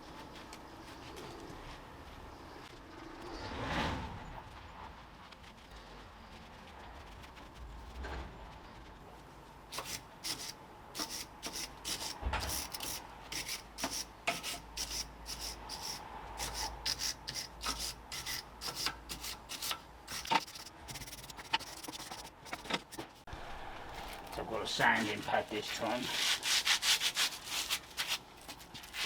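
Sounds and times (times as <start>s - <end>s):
sanding metal rasping strokes: 9.8s - 23.2s, 24.9s - 29.0s.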